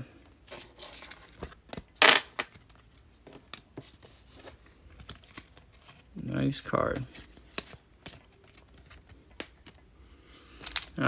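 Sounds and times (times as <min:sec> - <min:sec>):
trading cards clicking and tapping: 0:10.6 - 0:11.0.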